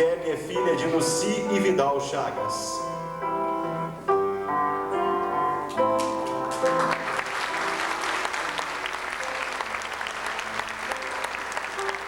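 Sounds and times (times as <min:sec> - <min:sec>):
instrumental music sustained notes: 0:00.0 - 0:12.0
audience applauding: 0:06.0 - 0:12.0.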